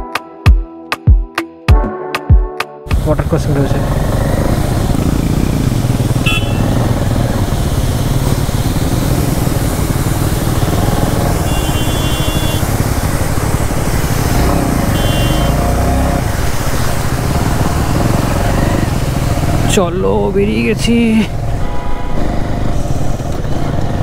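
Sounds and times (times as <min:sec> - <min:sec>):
motorcycle engine rumbling: 0:02.9 - 0:24.0
short horn beeps: 0:06.2 - 0:06.7, 0:11.4 - 0:12.6, 0:14.9 - 0:15.6.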